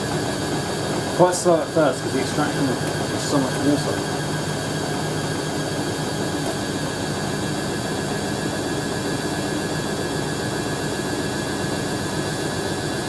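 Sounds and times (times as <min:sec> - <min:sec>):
washing machine spinning: 0:00.0 - 0:13.0.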